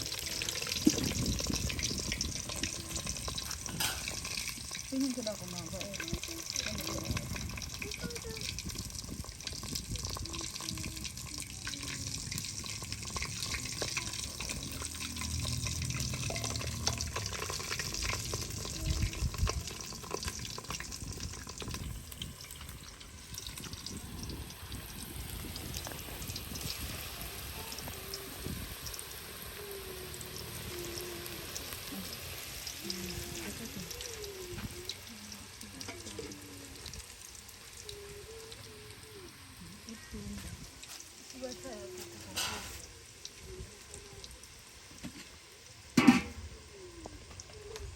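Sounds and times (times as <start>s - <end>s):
food frying in hot oil: 0.0s - 47.9s.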